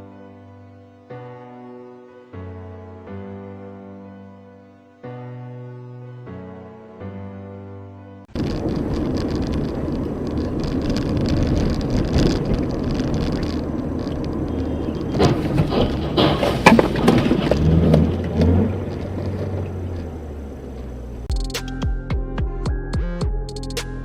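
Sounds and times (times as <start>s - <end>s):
tyres rushing on road: 8.3s - 21.3s
sharp knocks and bangs: 14.6s - 18.8s.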